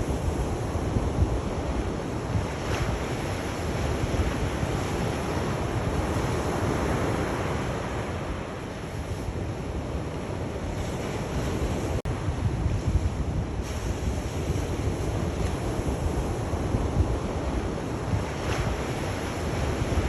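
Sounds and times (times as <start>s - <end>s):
sea waves washing ashore: 0.0s - 20.0s
wind rumbling on microphone: 0.0s - 20.0s.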